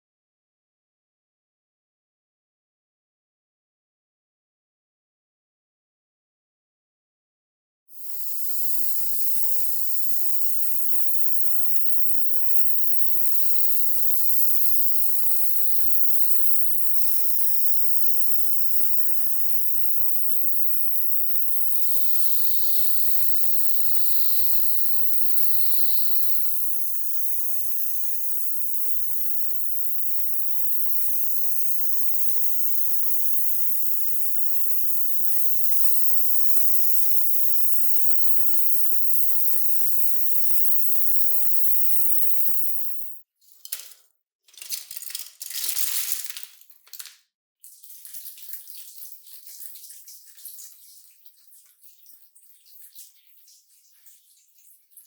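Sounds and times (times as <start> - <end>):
high-pitched spray hiss: 8.0 - 43.2.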